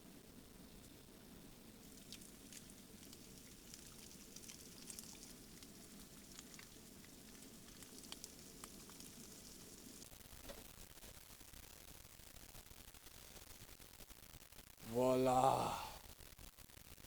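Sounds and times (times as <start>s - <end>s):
small crackles: 0.2s - 17.0s
eggs sizzling in a pan: 0.6s - 16.8s.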